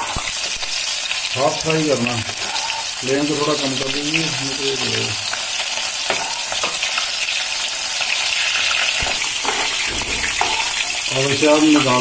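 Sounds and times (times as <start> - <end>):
mushrooms sizzling in oil: 0.0 - 12.0
steel spoon clinking on pan: 9.4 - 11.0.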